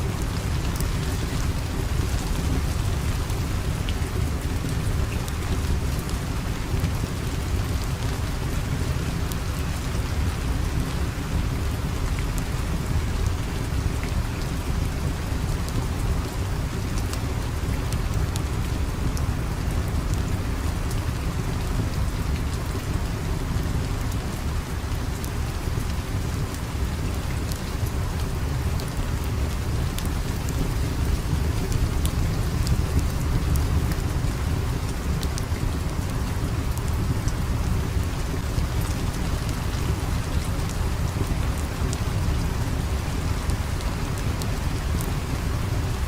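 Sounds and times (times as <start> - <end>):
steady rain: 0.0 - 46.0.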